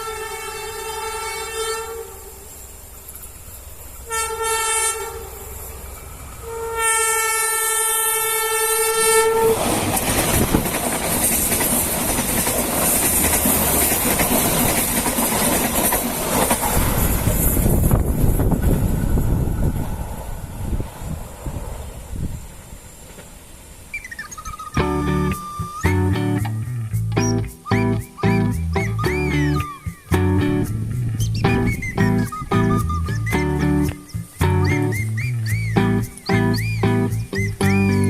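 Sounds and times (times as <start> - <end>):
train horn blasts: 0.0 - 2.4, 4.0 - 5.6, 6.4 - 9.6
train wheels clacking over rails: 9.6 - 19.8.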